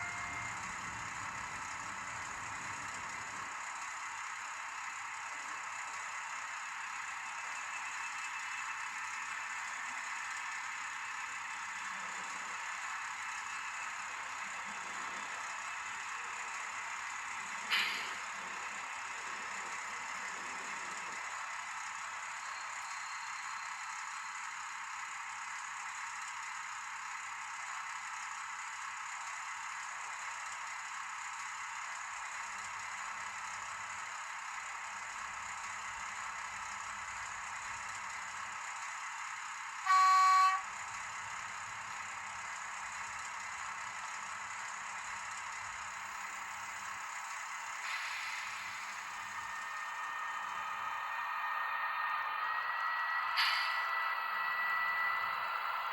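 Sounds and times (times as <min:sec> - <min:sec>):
diesel locomotive horn blast: 0:00.0 - 0:01.0, 0:39.8 - 0:40.8, 0:52.5 - 0:55.9
steady hiss: 0:47.6 - 0:51.2
sharp click: 0:53.3 - 0:54.0.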